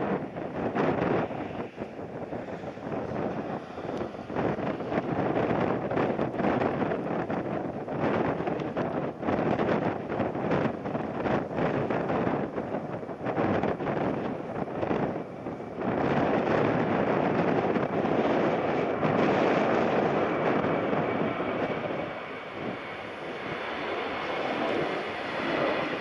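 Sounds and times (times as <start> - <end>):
jet airliner engine noise: 0.0 - 26.0
wind buffeting microphone: 0.0 - 26.0.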